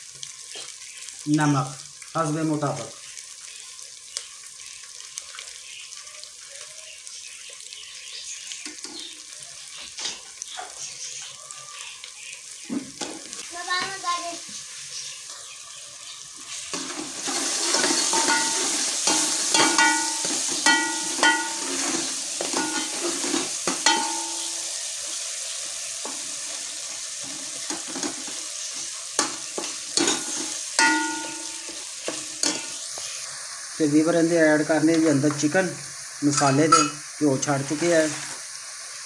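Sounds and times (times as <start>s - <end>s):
masala sizzling in oil: 0.0s - 39.0s
ladle scraping and clinking pot: 16.8s - 24.6s, 29.6s - 32.7s.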